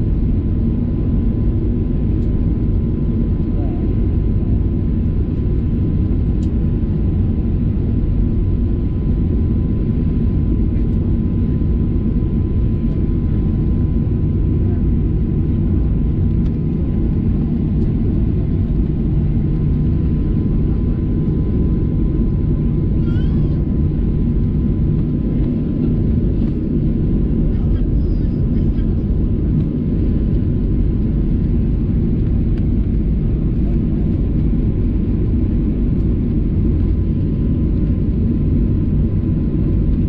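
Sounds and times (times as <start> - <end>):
jet engine cabin rumble: 0.0 - 40.0.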